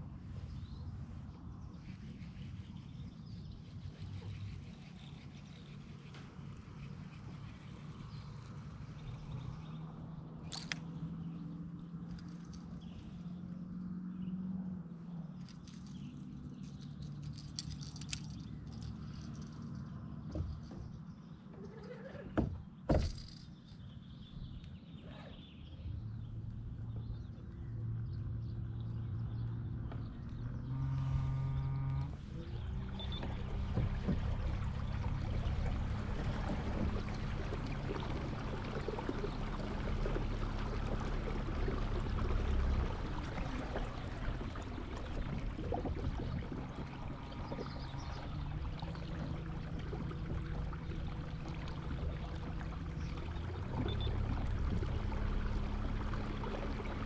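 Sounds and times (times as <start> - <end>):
boat motor humming: 0.0 - 57.0
water splashing past hull: 25.0 - 57.0.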